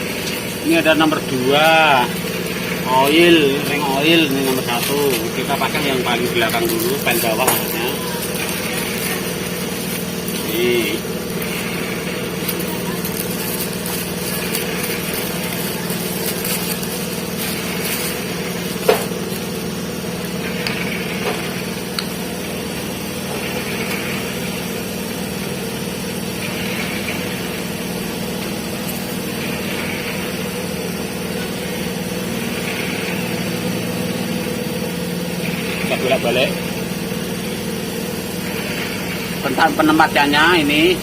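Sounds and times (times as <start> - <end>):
engine humming: 0.0 - 41.0.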